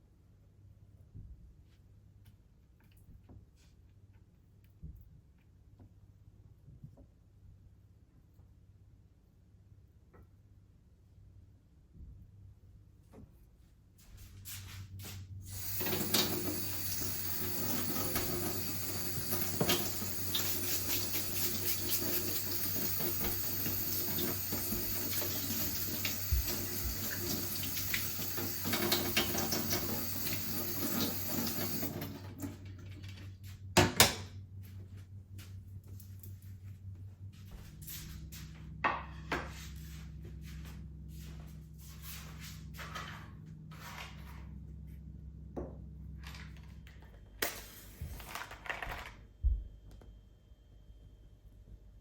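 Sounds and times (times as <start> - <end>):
tap water running into sink: 15.5 - 32.6.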